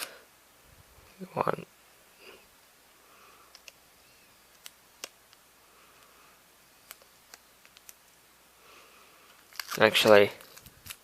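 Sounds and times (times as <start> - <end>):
faint clicks and ticks: 3.5 - 3.8.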